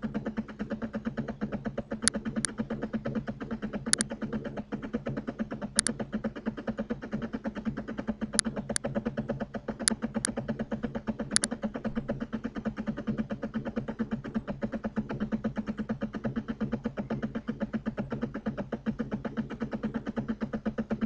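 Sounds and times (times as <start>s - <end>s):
fast-pulsing background hum: 0.0s - 21.0s
computer mouse clicking: 11.3s - 11.6s.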